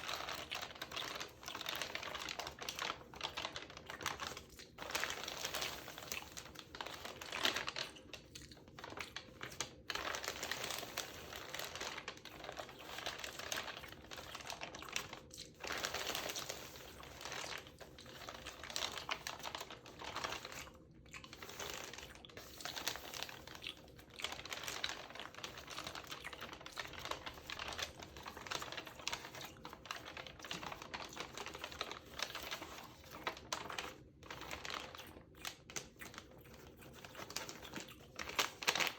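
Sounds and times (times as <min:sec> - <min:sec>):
paper pages crinkling: 0:00.0 - 0:38.9.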